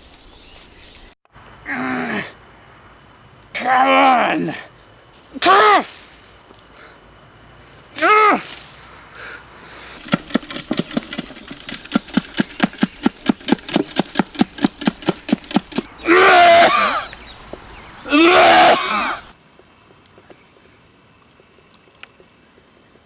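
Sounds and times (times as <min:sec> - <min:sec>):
short stuttering pulses: 0:10.0 - 0:17.0.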